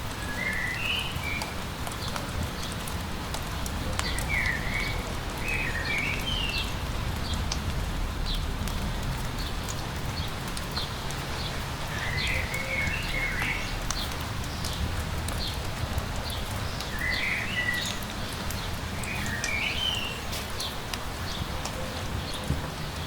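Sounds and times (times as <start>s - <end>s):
steady light rain: 0.0s - 23.0s
songbird singing: 4.0s - 7.5s, 10.2s - 15.6s, 16.2s - 22.6s.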